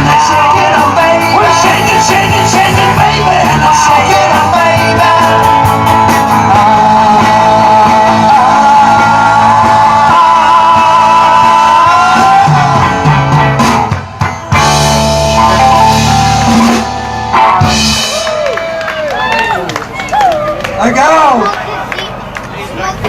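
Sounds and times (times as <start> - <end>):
live rock band playing: 0.0 - 18.8.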